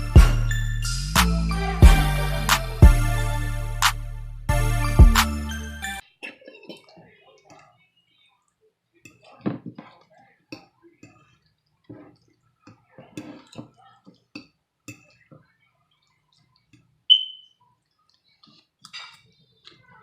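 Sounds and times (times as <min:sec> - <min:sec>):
cutlery taps: 0:11.9 - 0:15.5, 0:18.8 - 0:19.3.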